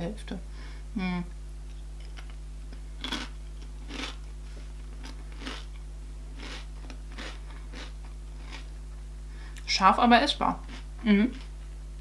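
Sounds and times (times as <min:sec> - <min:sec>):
steady low hum: 0:00.0 - 0:12.0
person crunching chips: 0:03.0 - 0:04.3, 0:04.9 - 0:08.7.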